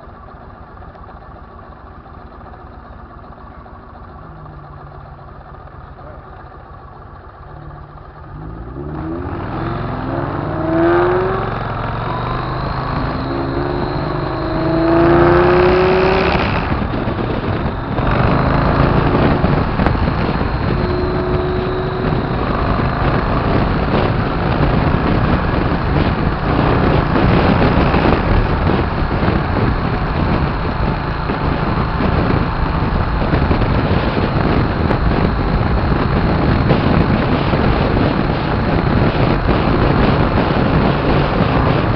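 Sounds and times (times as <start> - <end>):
motorcycle engine accelerating: 0.0 - 41.9
wind rushing: 8.4 - 41.9.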